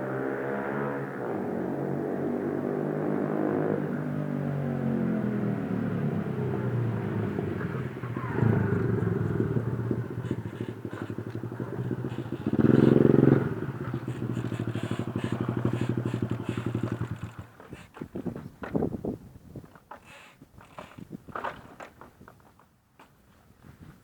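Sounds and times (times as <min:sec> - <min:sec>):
motorbike engine idling and revving: 0:00.0 - 0:19.1.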